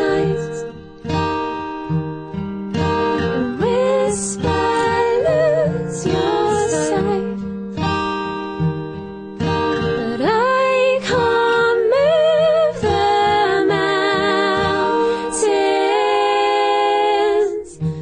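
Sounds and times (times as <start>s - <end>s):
woman singing wordless notes: 0.0s - 0.8s, 3.2s - 7.4s, 9.5s - 17.9s
acoustic guitar: 0.0s - 18.0s.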